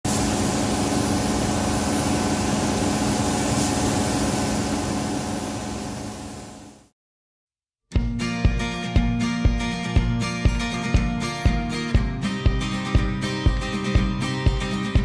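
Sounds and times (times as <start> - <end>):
machine hiss with low hum: 0.1 - 6.9.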